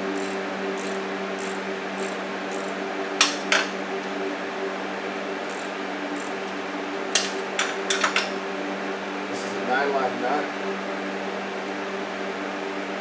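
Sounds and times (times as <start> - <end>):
steady low hum: 0.0 - 3.4
metallic clinks of wrench and bolts: 0.1 - 3.6, 5.5 - 6.6.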